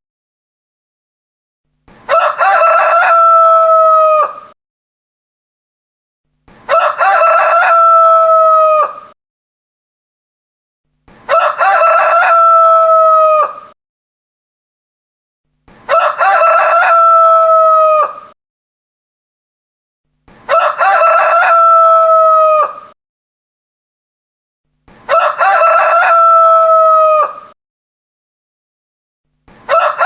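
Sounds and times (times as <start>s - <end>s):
rooster crowing: 2.1s - 4.6s, 6.7s - 9.2s, 11.3s - 13.8s, 15.9s - 18.4s, 20.5s - 23.0s, 25.1s - 27.6s, 29.7s - 30.0s.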